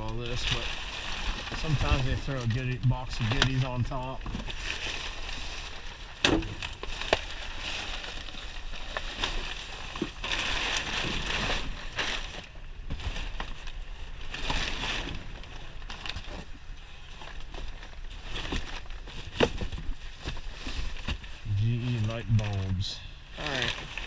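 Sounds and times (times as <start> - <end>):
boxes rustling: 0.0 - 24.0.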